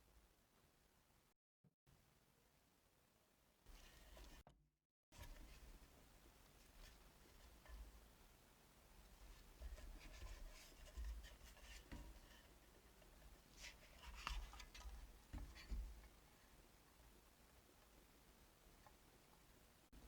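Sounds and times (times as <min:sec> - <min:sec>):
faint scratching and rubbing: 0:03.7 - 0:04.4, 0:05.2 - 0:17.2.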